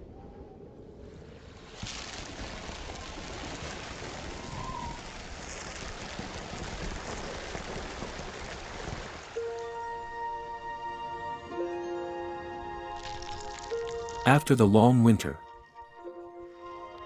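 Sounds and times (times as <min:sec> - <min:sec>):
rushing water: 0:01.6 - 0:10.6
soft music: 0:09.4 - 0:17.0.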